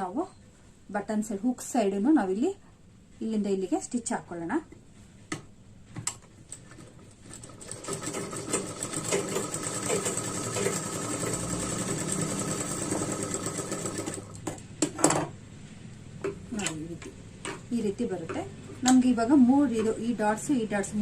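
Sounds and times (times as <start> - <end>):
sewing machine stitching: 6.6 - 14.6.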